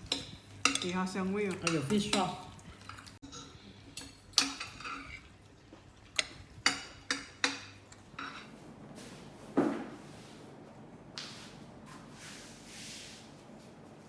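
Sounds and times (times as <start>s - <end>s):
metal utensil knocking on pot: 0.1s - 1.0s.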